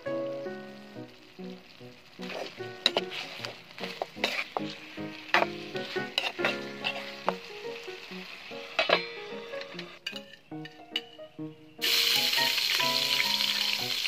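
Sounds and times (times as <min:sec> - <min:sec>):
chicken sizzling in a wok: 0:00.0 - 0:10.2, 0:11.8 - 0:14.0
metal ladle scraping and clacking: 0:02.2 - 0:07.4, 0:08.8 - 0:11.1.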